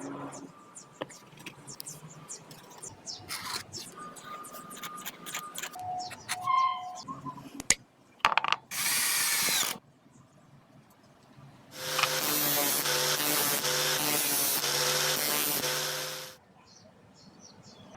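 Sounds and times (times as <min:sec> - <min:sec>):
electric drill running: 0:08.7 - 0:09.8, 0:11.8 - 0:16.4.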